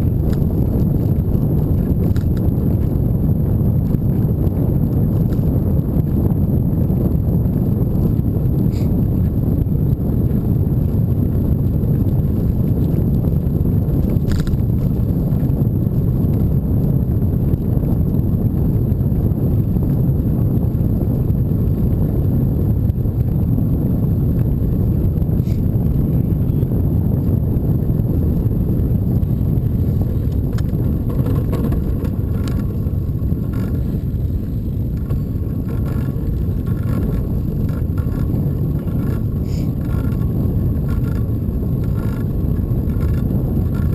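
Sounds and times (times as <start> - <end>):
road noise from moving bike: 0.0 - 43.9
wind buffeting microphone: 0.0 - 43.9
faint clicks and rattles: 0.2 - 2.9, 14.0 - 15.1, 29.2 - 43.9.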